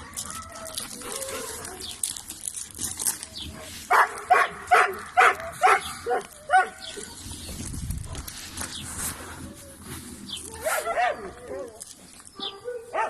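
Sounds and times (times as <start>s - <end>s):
dog barking: 3.9s - 6.8s, 10.7s - 11.2s, 12.4s - 13.0s.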